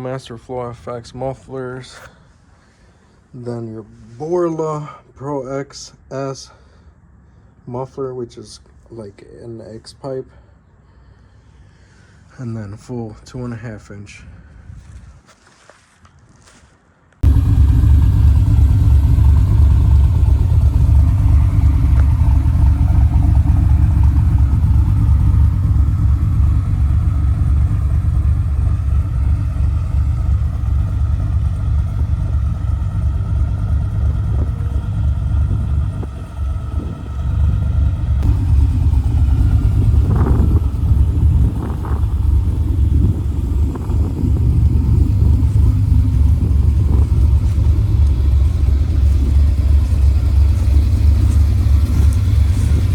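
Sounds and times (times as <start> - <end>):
car engine idling with lope: 17.2 - 52.9
engine throttle blips: 17.2 - 52.9.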